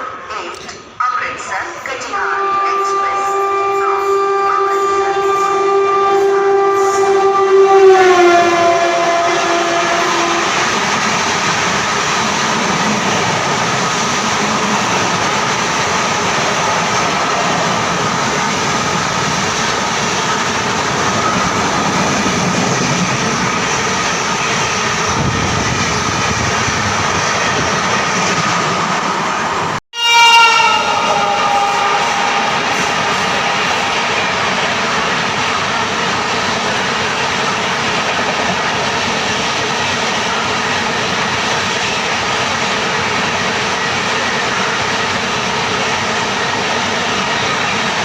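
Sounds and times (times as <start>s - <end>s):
train coaches rushing on rails: 0.0s - 48.0s
train horn dropping in pitch: 2.2s - 11.3s, 30.0s - 36.2s.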